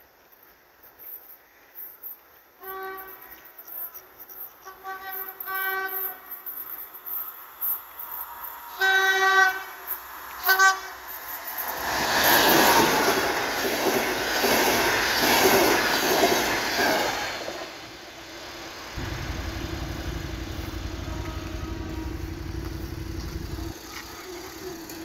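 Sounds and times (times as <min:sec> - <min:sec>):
train wheels clattering over rails: 0:11.1 - 0:17.8, 0:18.8 - 0:25.0
steady low rumble: 0:19.0 - 0:23.8.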